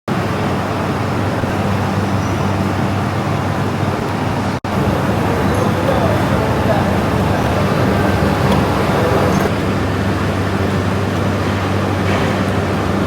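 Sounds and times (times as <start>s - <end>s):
electric motor humming: 4.7s - 9.5s.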